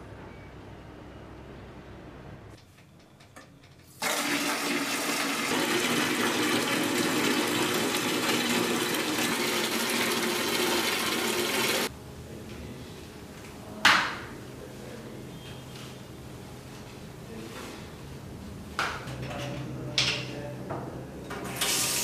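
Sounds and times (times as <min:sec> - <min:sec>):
tap water pouring into bucket: 0:04.0 - 0:11.9.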